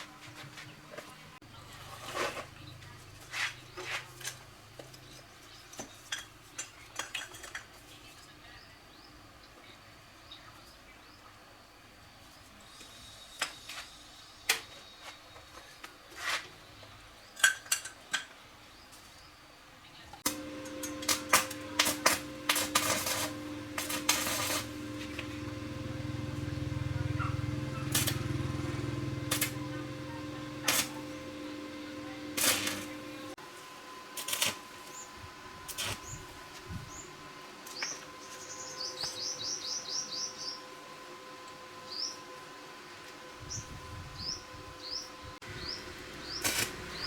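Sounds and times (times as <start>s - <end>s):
machine humming: 20.2s - 39.6s.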